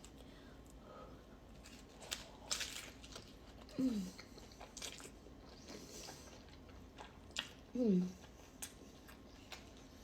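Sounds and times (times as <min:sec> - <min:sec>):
food crunches: 0:01.5 - 0:05.4.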